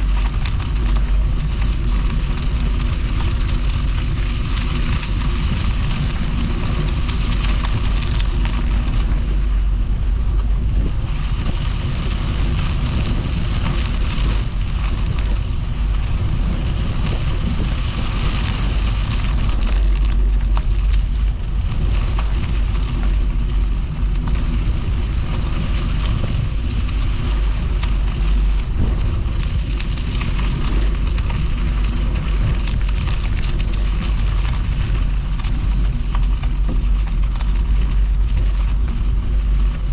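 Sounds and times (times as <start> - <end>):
deep even rumble: 0.0 - 39.9
wind rushing over microphone: 0.0 - 39.9.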